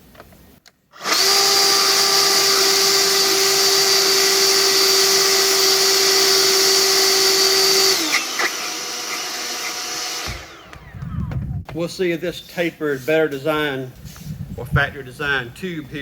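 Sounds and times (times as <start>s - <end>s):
high motor whine: 1.0s - 11.8s
leaf blower air rush: 1.0s - 11.8s.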